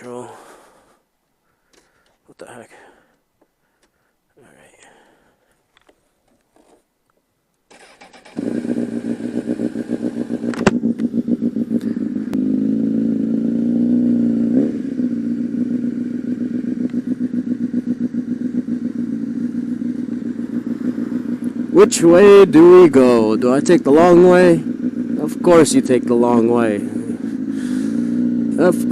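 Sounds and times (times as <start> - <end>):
motorcycle engine starting and idling: 7.7 - 28.9.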